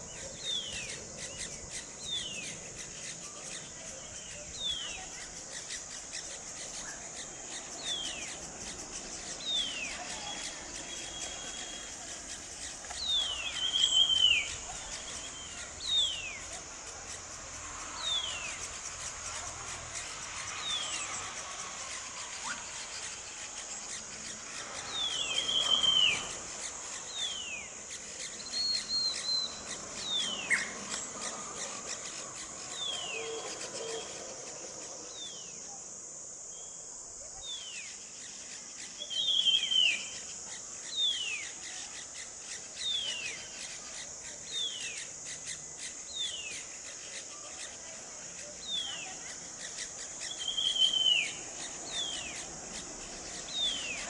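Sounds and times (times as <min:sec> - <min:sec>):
steady high hiss: 0:00.0 - 0:54.0
songbird whistling: 0:09.4 - 0:12.3, 0:13.0 - 0:16.4, 0:24.9 - 0:26.4, 0:28.3 - 0:30.8, 0:39.0 - 0:40.2, 0:50.2 - 0:52.4.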